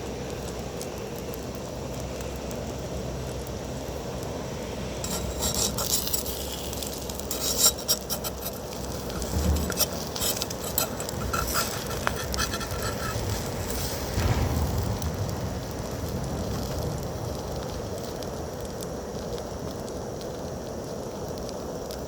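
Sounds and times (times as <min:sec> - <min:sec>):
steady low rush: 0:04.4 - 0:19.0
utensil scraping and clinking dishes: 0:05.0 - 0:13.8.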